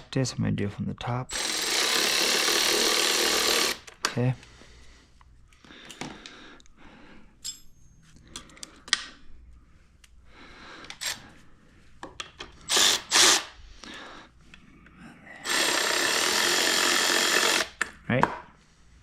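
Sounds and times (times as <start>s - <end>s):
power drill driving bolts: 1.3s - 4.0s, 12.7s - 13.5s, 15.4s - 17.8s.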